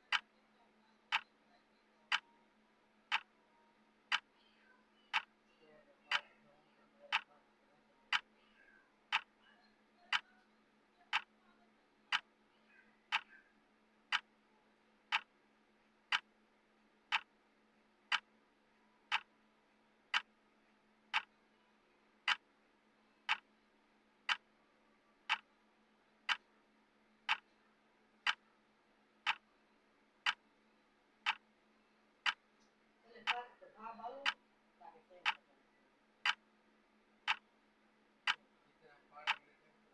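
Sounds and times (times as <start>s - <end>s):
timer ticking: 0.0s - 0.3s, 1.1s - 1.3s, 3.1s - 3.4s, 4.1s - 4.3s, 5.1s - 5.3s, 7.1s - 7.3s, 8.1s - 8.3s, 9.1s - 9.4s, 10.1s - 10.4s, 11.1s - 11.4s, 14.1s - 14.3s, 15.1s - 15.4s, 16.1s - 16.4s, 17.1s - 17.4s, 18.1s - 18.3s, 19.1s - 19.4s, 20.1s - 20.4s, 21.1s - 21.4s, 22.2s - 22.5s, 23.2s - 23.5s, 24.2s - 24.5s, 25.3s - 25.5s, 26.2s - 26.6s, 27.2s - 27.5s, 28.2s - 28.5s, 29.2s - 29.5s, 30.2s - 30.4s, 31.2s - 31.5s, 32.2s - 32.5s, 34.2s - 34.4s, 35.2s - 35.5s, 36.2s - 36.5s, 37.2s - 37.6s, 38.2s - 38.4s, 39.2s - 39.5s
faint steady hum: 0.0s - 39.9s.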